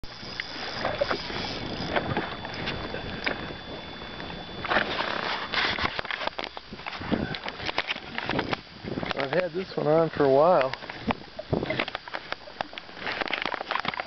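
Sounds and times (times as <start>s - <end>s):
water noise: 0.0s - 14.0s
wind: 0.0s - 14.0s.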